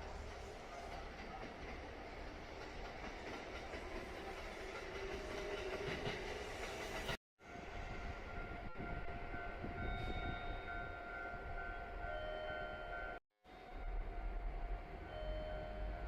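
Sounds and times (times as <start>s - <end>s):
train wheels rumbling on rails: 0.0s - 7.2s.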